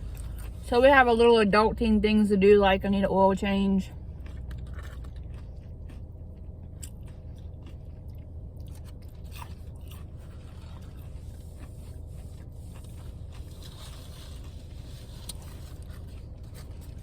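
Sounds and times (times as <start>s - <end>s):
person chewing: 0.0s - 0.7s, 3.9s - 17.0s
steady low hum: 0.0s - 17.0s
small clicks and crunches: 4.2s - 6.0s, 12.8s - 17.0s.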